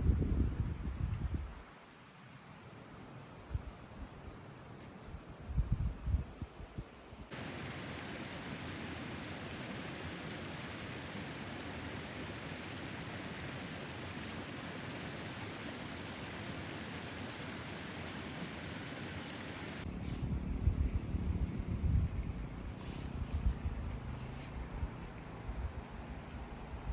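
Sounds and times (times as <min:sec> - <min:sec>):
river rushing: 0:07.3 - 0:19.9.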